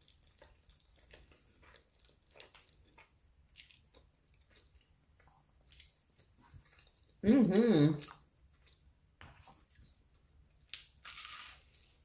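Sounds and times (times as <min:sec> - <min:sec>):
soft wet chewing clicks: 0:00.0 - 0:07.2, 0:08.0 - 0:10.0.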